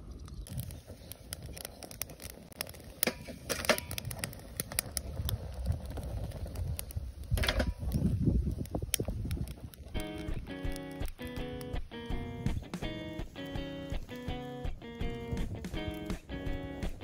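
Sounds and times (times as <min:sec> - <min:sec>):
bonfire crackling and popping: 0:00.0 - 0:17.0
low rumble of flame: 0:00.0 - 0:17.0.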